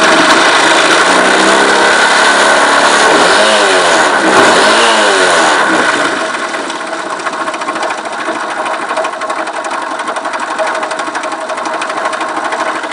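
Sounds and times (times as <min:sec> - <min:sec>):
rapid ticking clatter: 0:05.6 - 0:12.9
motorcycle engine idling: 0:05.9 - 0:12.9.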